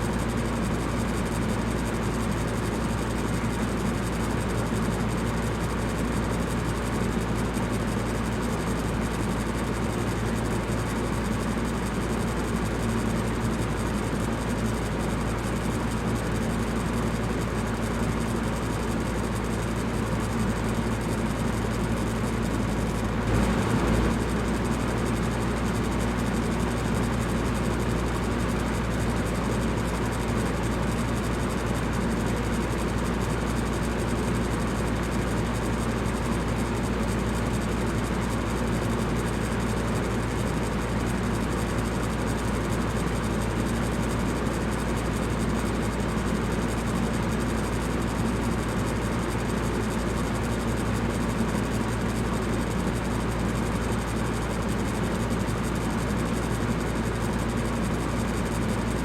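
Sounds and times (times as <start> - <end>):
low motor hum: 22.1 - 28.8
electric fan air rush: 22.6 - 29.7.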